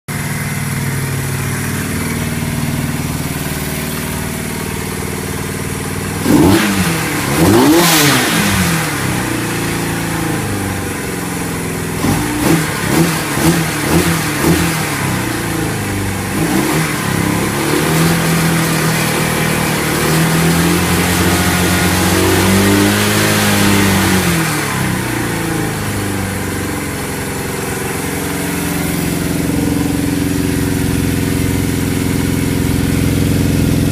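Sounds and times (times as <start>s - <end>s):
motorcycle engine idling and revving: 0.1s - 33.9s.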